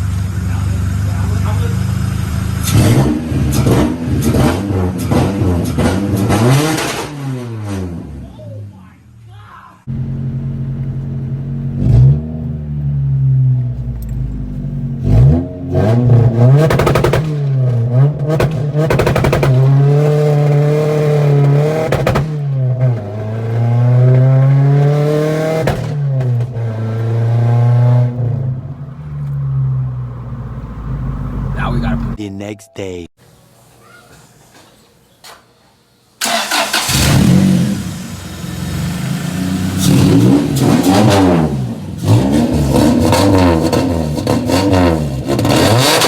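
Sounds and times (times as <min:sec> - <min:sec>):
car engine revving: 0:00.0 - 0:08.3, 0:09.9 - 0:32.2, 0:36.2 - 0:46.0
exhaust sharp cracks: 0:18.3 - 0:19.8.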